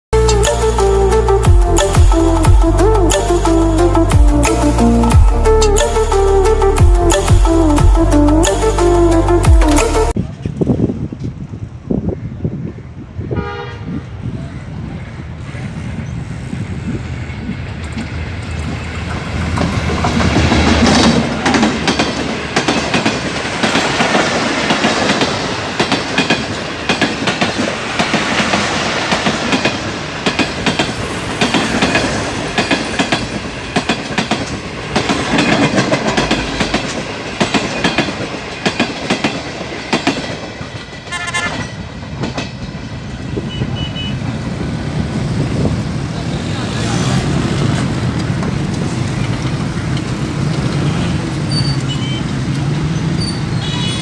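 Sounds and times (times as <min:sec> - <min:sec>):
train rushing past: 0:13.2 - 0:54.0
train wheels clattering over rail joints: 0:17.5 - 0:43.0.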